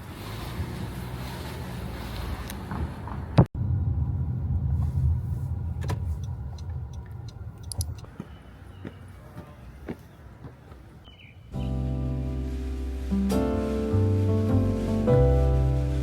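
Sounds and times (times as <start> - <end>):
car rumbling on the move: 0.0 - 9.6, 11.6 - 16.0
sharp clicks: 5.8 - 8.1.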